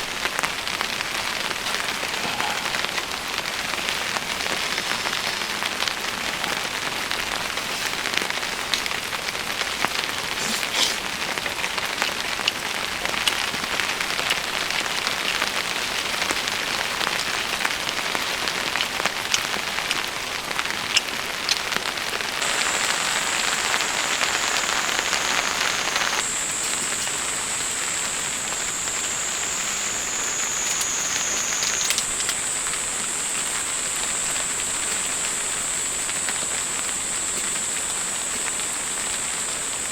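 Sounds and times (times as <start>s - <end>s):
steady rain: 0.0s - 39.9s
raindrops ticking on a surface: 11.1s - 39.6s
thin high-pitched tone: 22.4s - 32.0s.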